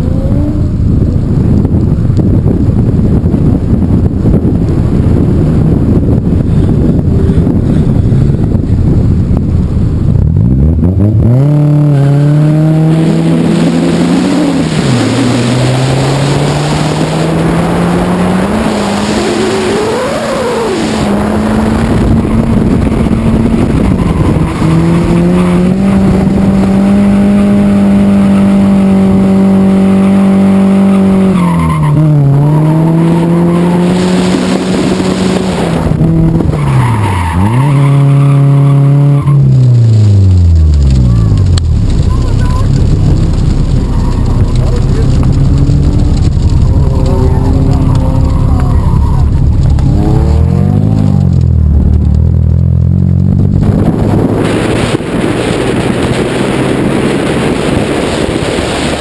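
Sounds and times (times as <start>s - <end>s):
car engine revving hard: 10.3s - 59.0s
tyres skidding and squealing: 10.6s - 28.8s, 30.8s - 52.7s.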